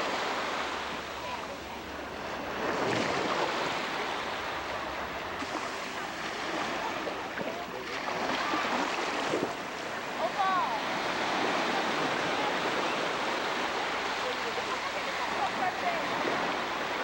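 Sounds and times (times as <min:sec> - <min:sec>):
rushing water: 0:00.0 - 0:17.0
wind: 0:00.0 - 0:17.0
faint voices: 0:00.9 - 0:17.0.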